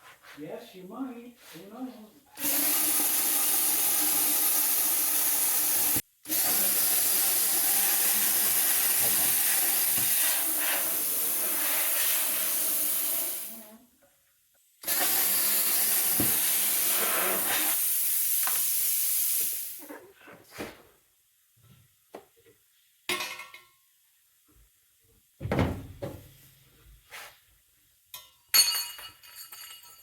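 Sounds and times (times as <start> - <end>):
arc welding hiss: 2.4 - 13.6, 14.9 - 19.8.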